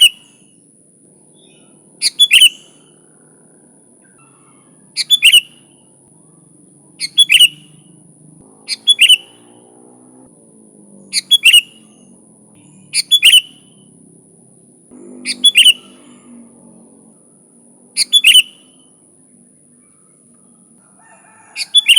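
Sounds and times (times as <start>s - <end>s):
faint high-pitched whine: 0.0s - 21.9s
bird calling bubbly notes: 1.4s - 3.0s, 5.0s - 5.8s, 7.0s - 7.7s, 8.6s - 9.7s, 11.0s - 12.2s, 12.9s - 13.8s, 15.2s - 16.2s, 17.9s - 19.0s.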